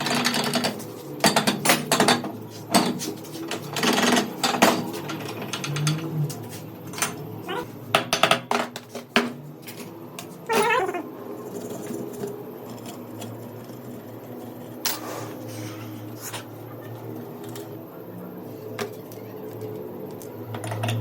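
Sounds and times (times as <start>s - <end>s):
wavering high-pitched cry: 7.5s - 7.7s, 10.5s - 11.1s.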